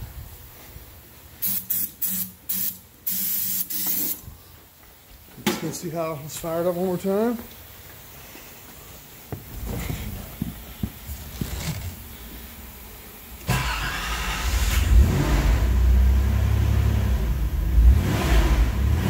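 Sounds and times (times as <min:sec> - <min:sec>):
car engine starting and running: 0:13.5 - 0:19.0.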